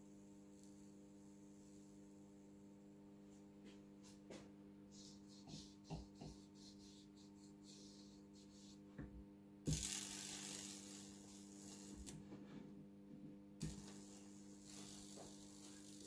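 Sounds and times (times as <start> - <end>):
electrical hum: 0.0 - 16.0
electrical hiss: 13.6 - 16.0.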